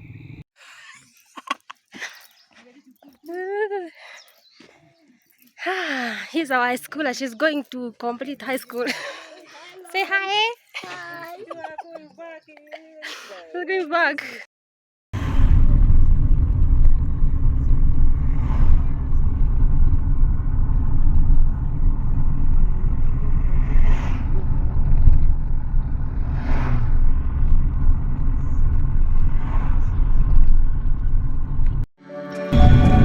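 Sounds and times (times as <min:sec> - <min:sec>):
loud low rumble: 0:15.2 - 0:31.9, 0:32.5 - 0:33.0.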